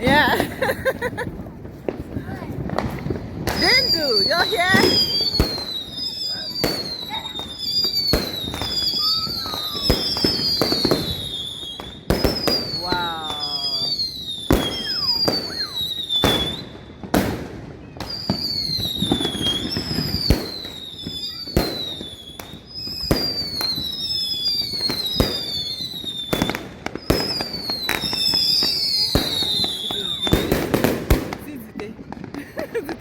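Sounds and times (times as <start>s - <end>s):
fireworks bangs and cracks: 0.0s - 33.0s
falling whistling tone: 3.6s - 16.8s.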